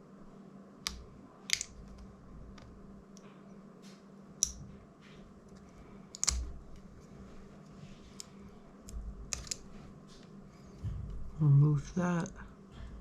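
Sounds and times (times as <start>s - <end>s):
faint steady hum: 0.0s - 13.0s
tools clicking on plastic: 5.5s - 6.6s, 8.9s - 9.6s.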